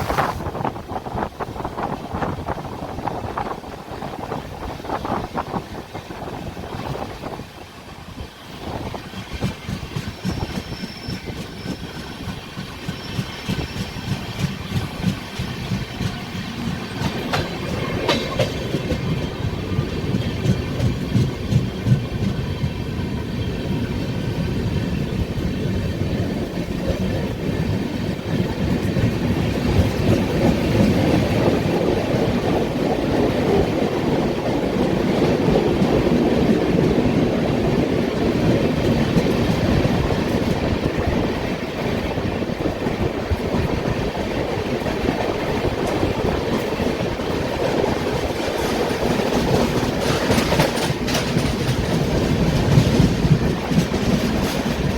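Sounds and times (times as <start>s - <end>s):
train wheels clattering on rails: 0.0s - 54.9s.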